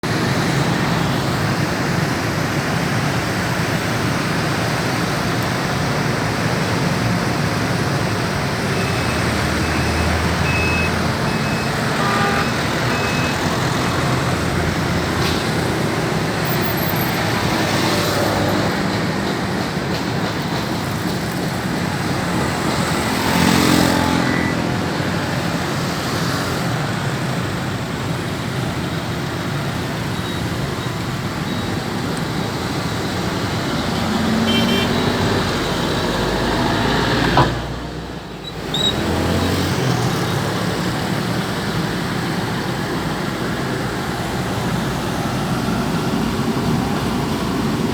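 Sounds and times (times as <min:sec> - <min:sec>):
road traffic: 0:00.0 - 0:47.9
vehicle passing close: 0:21.7 - 0:26.6, 0:32.3 - 0:38.2.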